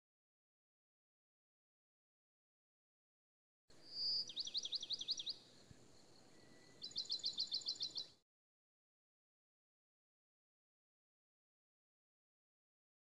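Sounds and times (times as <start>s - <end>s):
songbird singing: 3.7s - 8.2s.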